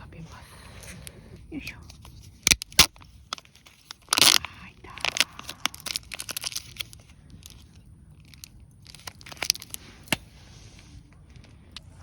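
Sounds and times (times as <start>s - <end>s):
chewing crunches: 2.4s - 10.2s.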